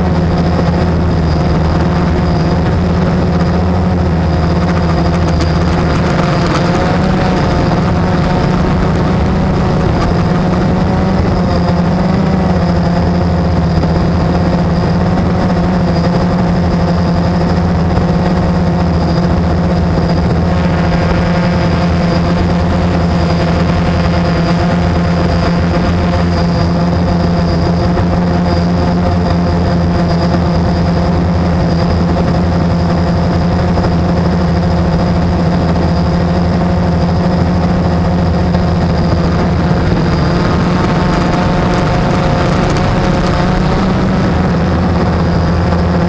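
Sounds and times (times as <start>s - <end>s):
quadcopter propellers humming: 0.0s - 46.0s.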